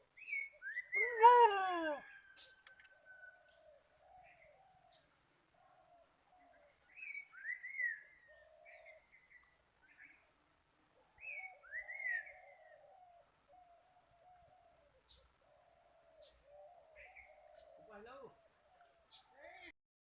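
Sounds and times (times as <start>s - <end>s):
low wavering bird call: 0.2s - 2.3s.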